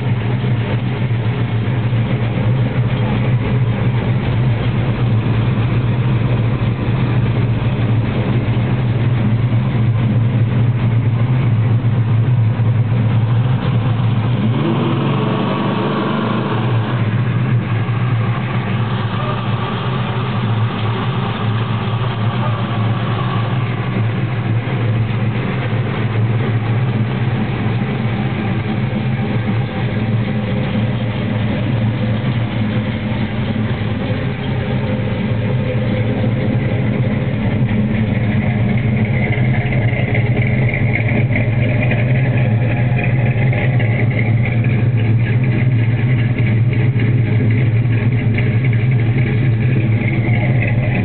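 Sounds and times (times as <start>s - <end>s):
car engine idling: 0.0s - 51.0s.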